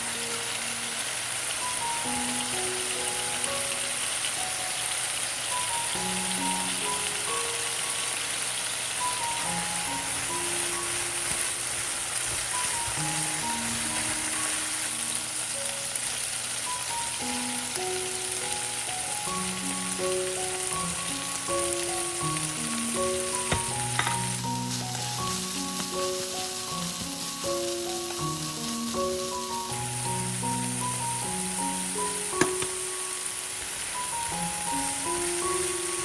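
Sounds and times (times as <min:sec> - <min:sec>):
food frying in oil: 0:00.0 - 0:36.0
melodic background music: 0:00.0 - 0:36.0.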